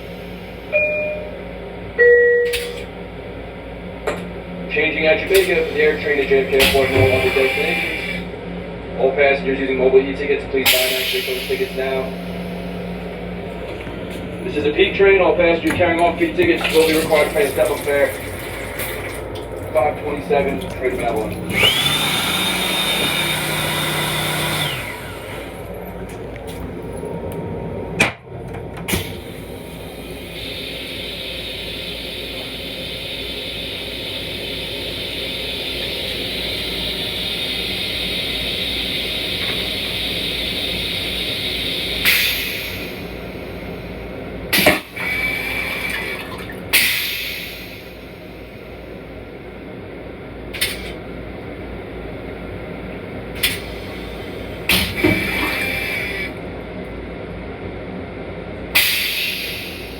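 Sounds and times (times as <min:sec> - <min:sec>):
steady low rumble: 0:00.0 - 0:07.4, 0:08.2 - 0:21.9, 0:25.1 - 0:39.4
toilet flushing: 0:00.0 - 0:08.4, 0:10.6 - 0:56.7, 0:58.7 - 0:59.9.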